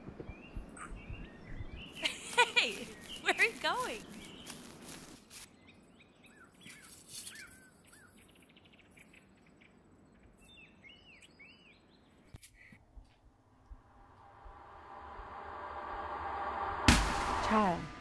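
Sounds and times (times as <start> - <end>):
small birds chirping: 0.0 - 13.8
outdoor ambience hiss: 0.0 - 18.0.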